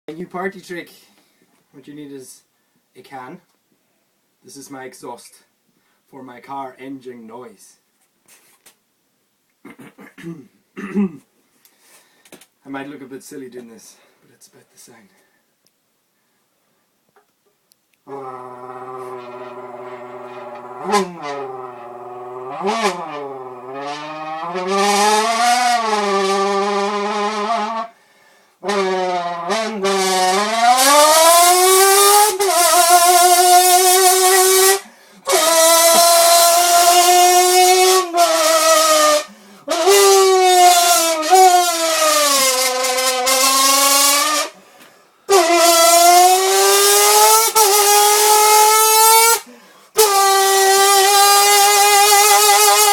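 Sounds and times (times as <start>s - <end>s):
man imitating car engine: 18.1s - 27.8s, 28.6s - 44.5s, 45.3s - 52.9s.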